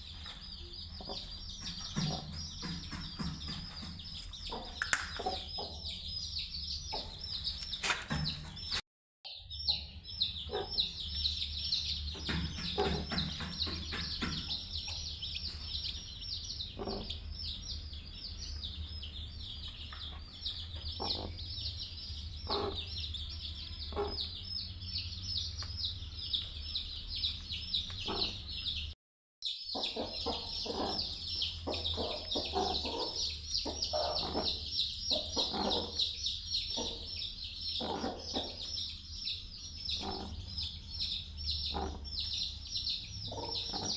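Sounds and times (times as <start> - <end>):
chicks peeping: 0.0 - 43.9
hen clucking: 0.9 - 6.0, 9.7 - 17.5, 20.0 - 21.7, 22.4 - 24.4, 27.9 - 28.6, 29.7 - 38.8, 39.9 - 42.4, 43.1 - 43.9.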